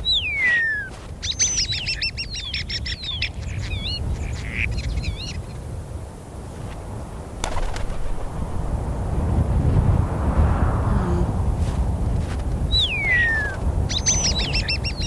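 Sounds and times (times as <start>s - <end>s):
sharp click: 7.4s - 9.0s
birds chirping: 7.4s - 9.4s
low steady rumble: 7.4s - 12.3s.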